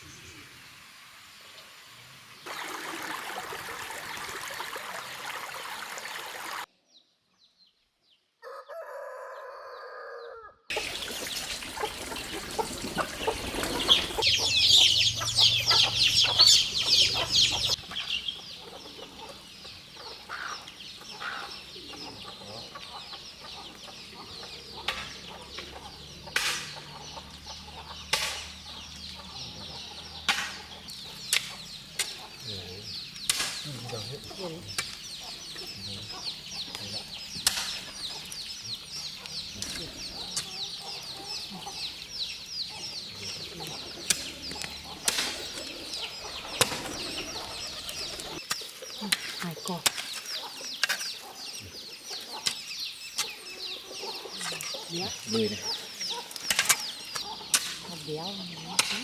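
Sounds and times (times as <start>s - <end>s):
rooster crowing: 8.4s - 10.7s
chickens clucking and squawking: 8.4s - 59.0s.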